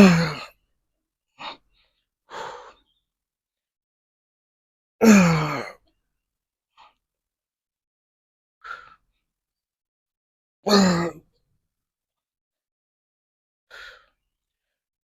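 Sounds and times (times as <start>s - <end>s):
man grunting: 0.0s - 0.4s, 5.0s - 5.7s, 10.7s - 11.2s
man breathing hard: 1.4s - 2.9s, 13.7s - 14.2s.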